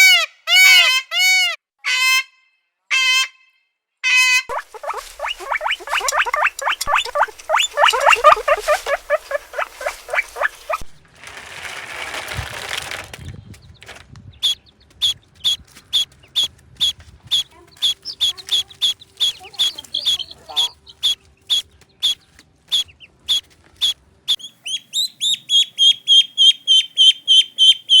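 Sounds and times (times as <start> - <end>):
chicks peeping: 4.5 - 11.0, 14.4 - 28.0
rustling hiss: 4.5 - 11.0.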